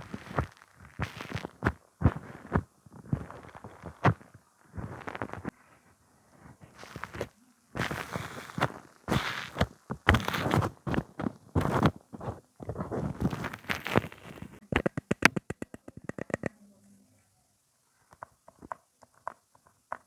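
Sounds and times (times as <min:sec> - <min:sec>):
rustling and crackling handling: 0:00.0 - 0:15.4.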